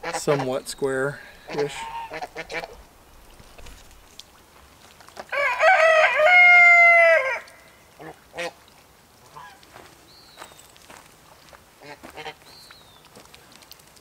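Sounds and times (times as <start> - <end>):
rooster crowing: 5.3 - 7.5.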